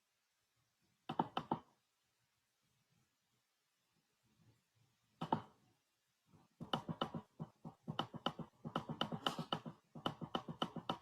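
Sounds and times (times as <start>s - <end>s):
computer mouse clicks: 1.1s - 1.7s, 5.2s - 5.6s, 6.6s - 11.0s.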